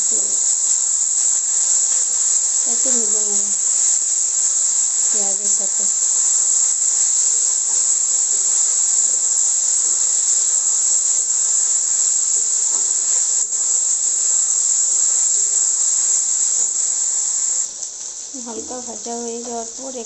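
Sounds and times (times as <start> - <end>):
vegetables sizzling in a wok: 0.0 - 20.0.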